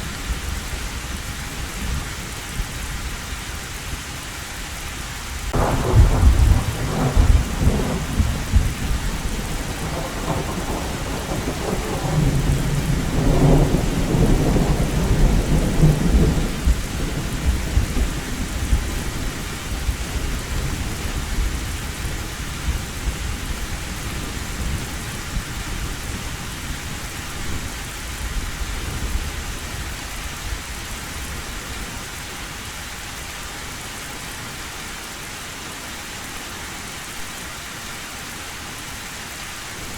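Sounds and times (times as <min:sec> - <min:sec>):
heavy rain on a tin roof: 0:00.0 - 0:39.9
thunder rumbling: 0:05.5 - 0:26.3.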